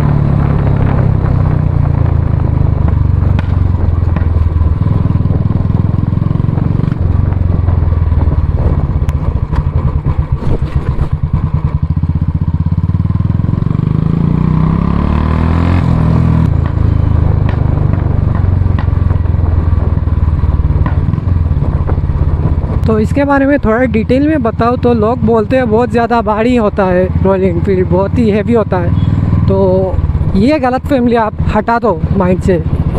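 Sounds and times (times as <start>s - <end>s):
motorcycle engine thumping: 0.0s - 13.9s, 16.2s - 23.0s.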